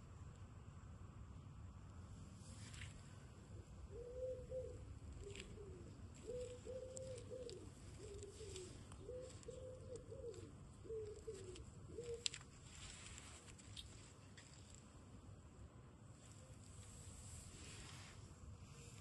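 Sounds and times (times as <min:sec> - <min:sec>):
dove cooing: 0:03.9 - 0:12.4.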